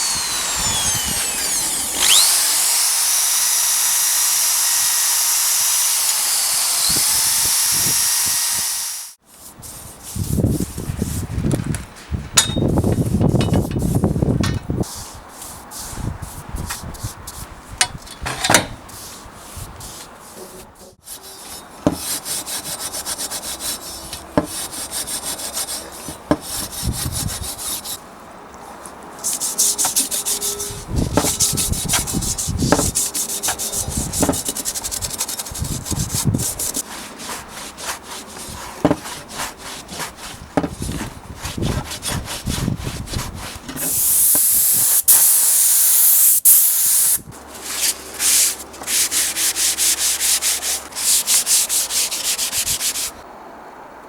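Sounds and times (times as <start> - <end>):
wood rubbing and scraping: 0.0 - 9.0, 28.9 - 44.0, 47.4 - 53.2.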